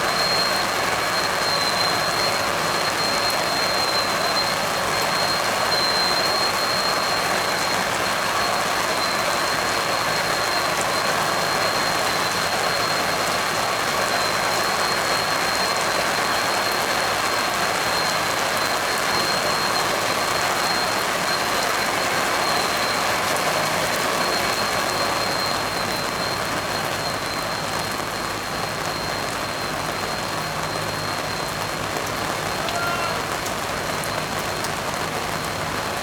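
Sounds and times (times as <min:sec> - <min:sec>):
thin high whistle: 0:00.0 - 0:12.1
water spraying and falling: 0:00.0 - 0:36.0.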